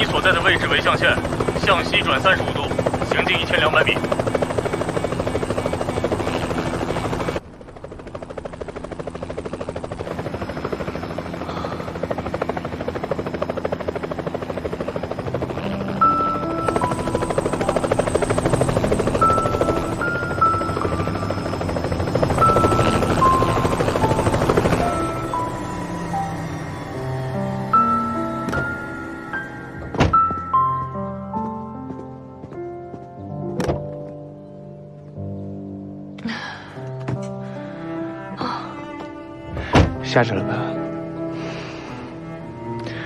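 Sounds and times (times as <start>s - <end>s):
helicopter rotor chopping: 0.0s - 30.7s
gentle melodic music: 12.2s - 43.0s.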